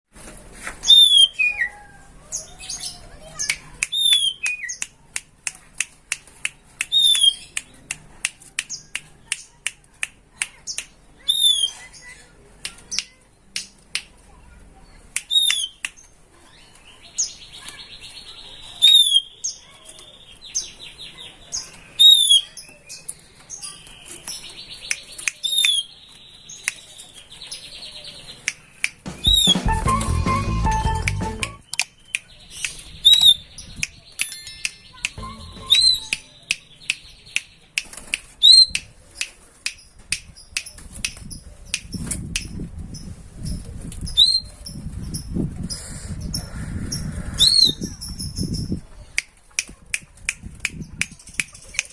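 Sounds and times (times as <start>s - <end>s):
sharp bird chips: 2.8s - 14.1s, 21.6s - 30.1s, 30.7s - 42.6s.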